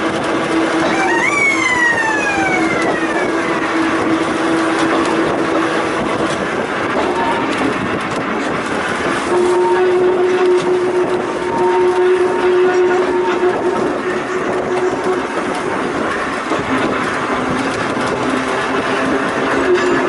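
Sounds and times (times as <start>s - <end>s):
electric railcar humming: 0.0s - 20.0s
high whine falling in pitch: 0.8s - 4.2s.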